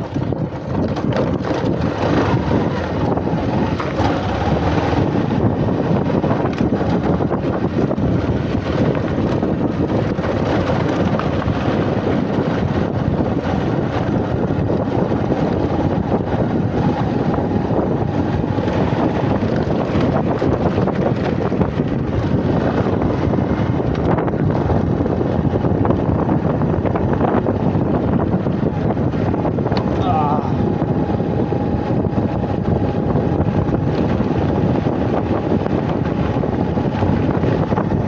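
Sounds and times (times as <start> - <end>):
motorcycle engine running: 0.0 - 38.0
wind buffeting microphone: 0.0 - 38.0.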